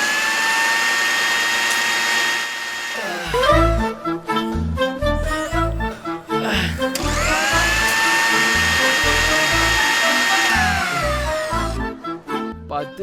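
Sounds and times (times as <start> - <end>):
small electric motor whining: 0.0 - 3.2, 6.8 - 12.0.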